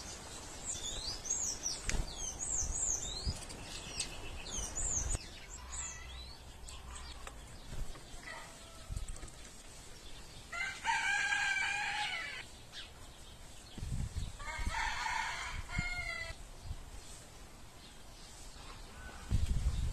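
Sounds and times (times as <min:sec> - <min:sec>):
rooster crowing: 0:10.5 - 0:12.4, 0:14.4 - 0:16.4.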